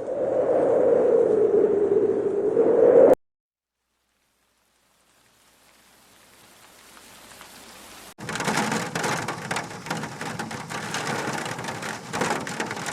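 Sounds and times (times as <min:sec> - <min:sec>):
heavy rain pattering: 0:03.9 - 0:12.9.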